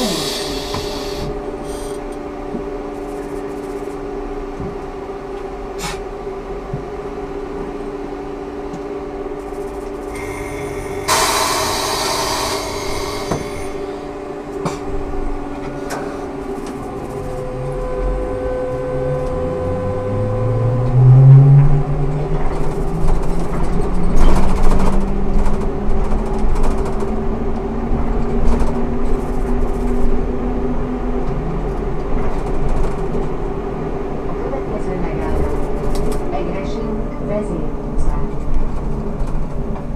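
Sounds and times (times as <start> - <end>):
compressed-air hiss: 0.0 - 2.0, 10.1 - 14.1
electric motor whine rising: 0.0 - 2.1, 10.1 - 14.6
electrical hum: 0.0 - 39.9.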